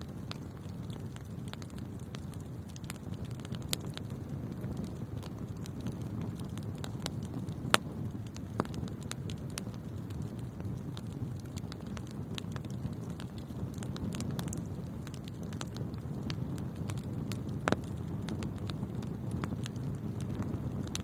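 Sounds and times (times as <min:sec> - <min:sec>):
crackles and pops of fire: 0:00.0 - 0:21.0
wood fire burning: 0:00.0 - 0:21.0.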